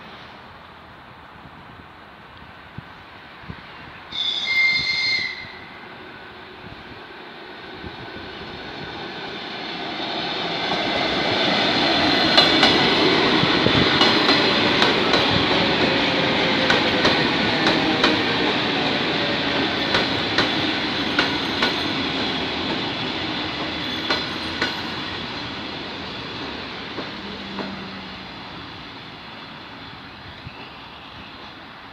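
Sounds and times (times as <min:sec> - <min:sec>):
electric train rumbling past: 0:02.5 - 0:31.9
train wheels clicking over rail joints: 0:10.6 - 0:27.9.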